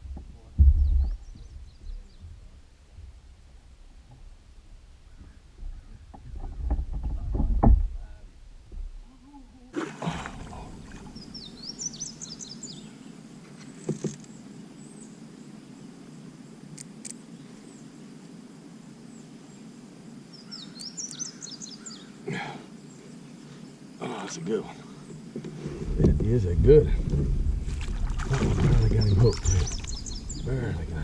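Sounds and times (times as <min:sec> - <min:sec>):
songbird singing: 0:00.0 - 0:03.5, 0:04.1 - 0:31.0
steady low hiss: 0:00.0 - 0:31.0
low rumble: 0:25.8 - 0:31.0.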